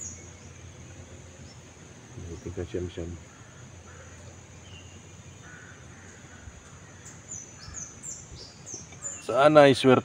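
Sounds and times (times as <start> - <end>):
high falling bird chirps: 0.0 - 9.6
short rough bird calls: 2.4 - 9.4.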